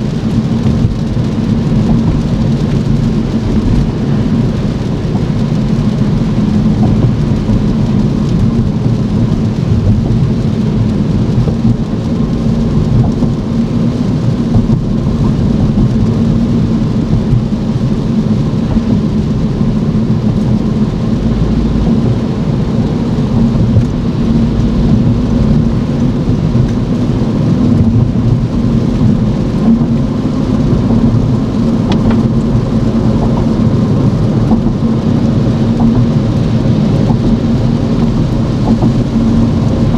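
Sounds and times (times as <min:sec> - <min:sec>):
car tyre and engine rumble: 0:00.0 - 0:39.9
rain: 0:00.0 - 0:39.9.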